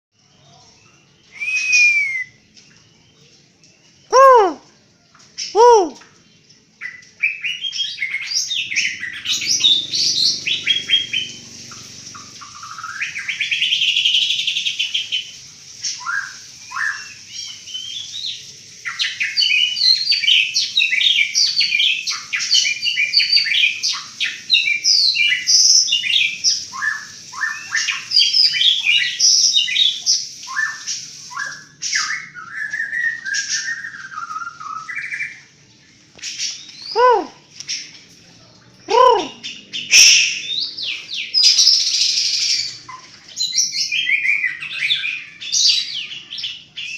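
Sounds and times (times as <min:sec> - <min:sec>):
songbird singing rapid trills: 0:05.4 - 0:35.8.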